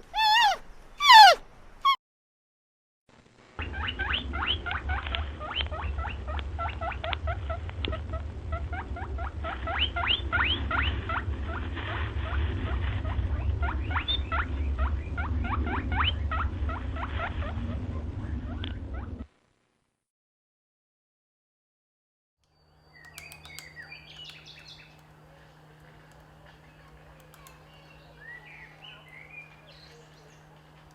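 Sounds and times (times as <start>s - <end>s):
small animal squeaking: 0.0s - 2.0s
low rumble: 4.2s - 19.3s.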